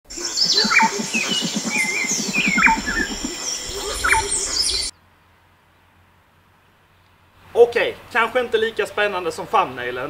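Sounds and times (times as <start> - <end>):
birds whistling calls: 0.1 - 4.9
fast low pulsing chatter: 0.1 - 4.9
steady high hum: 0.1 - 4.9.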